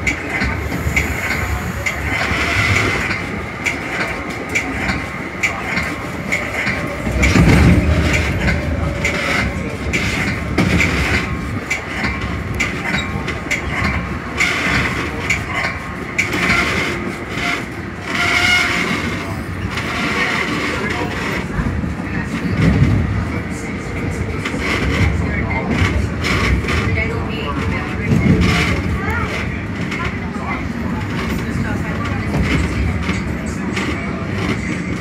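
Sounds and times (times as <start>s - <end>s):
wheels clicking over rail joints: 0.0s - 23.2s
train rail noise: 0.0s - 35.0s.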